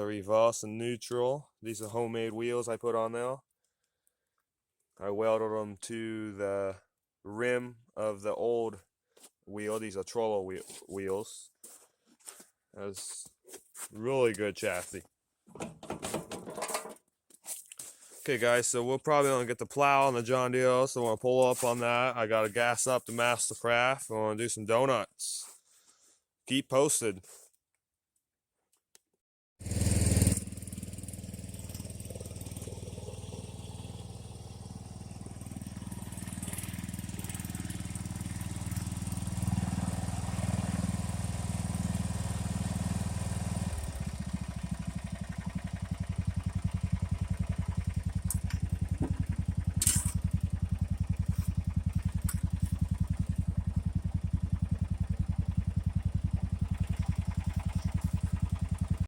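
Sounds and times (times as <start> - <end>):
lawn mower engine running: 29.6 - 59.0.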